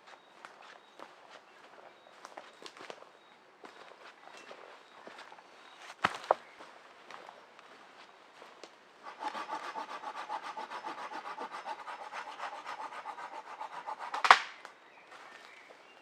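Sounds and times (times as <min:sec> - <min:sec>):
hand saw cutting wood: 0:09.0 - 0:14.6
sharp wood crack: 0:14.0 - 0:14.7.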